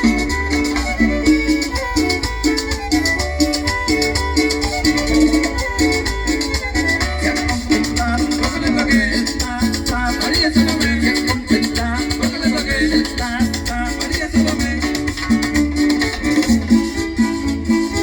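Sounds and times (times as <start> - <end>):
violin melody: 0.0 - 10.3, 15.6 - 18.0
low bass: 0.0 - 18.0
plucked strings: 0.0 - 18.0
shaker beat: 0.0 - 18.0.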